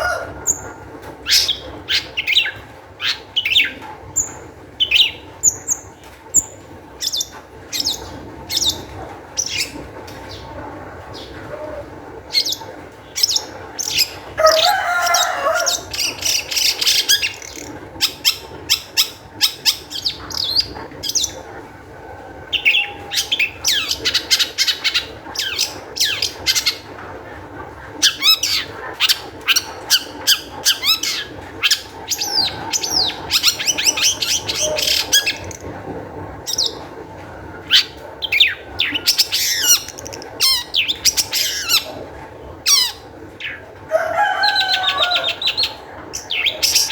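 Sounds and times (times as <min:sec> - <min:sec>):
shrike chattering and whistling: 0:28.0 - 0:35.7, 0:37.7 - 0:41.9.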